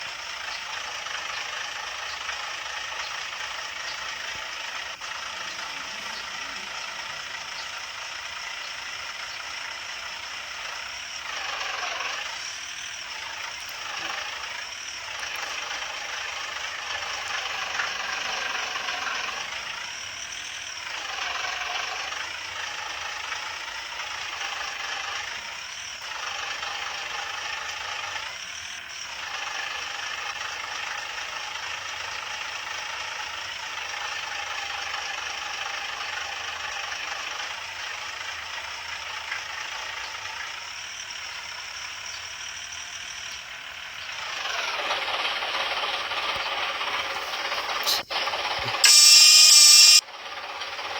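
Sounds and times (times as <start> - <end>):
cartoon truck engine drone: 0.0 - 25.4, 44.0 - 50.0.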